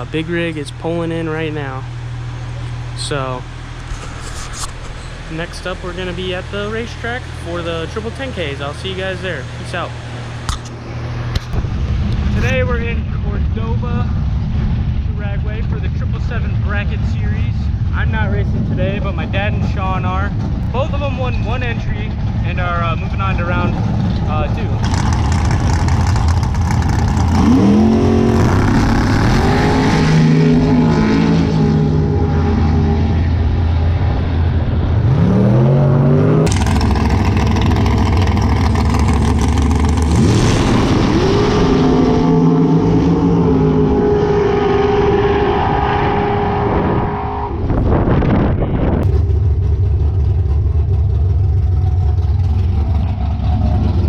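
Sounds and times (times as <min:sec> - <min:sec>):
racing cars accelerating hard: 0:24.8 - 0:33.6, 0:35.0 - 0:47.9.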